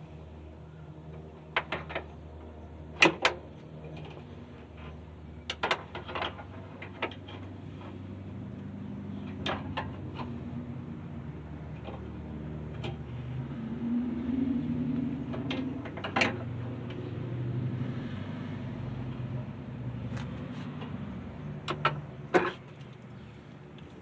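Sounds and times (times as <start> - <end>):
steady low hum: 0.0 - 24.0
sharp knocks and clunks: 21.7 - 22.8.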